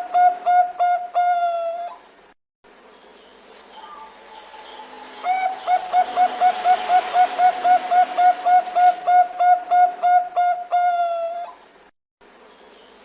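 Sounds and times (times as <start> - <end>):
dove cooing: 0.0 - 2.1, 3.8 - 11.6.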